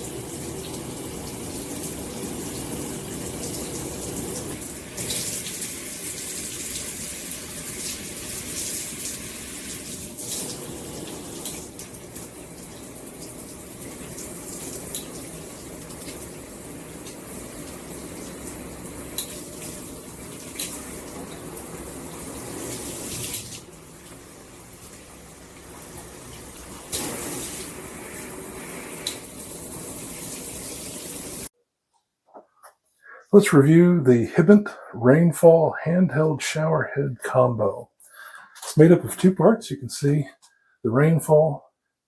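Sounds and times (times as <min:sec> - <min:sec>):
water running from shower head: 0:00.0 - 0:31.5
sharp splashes: 0:26.9 - 0:28.4.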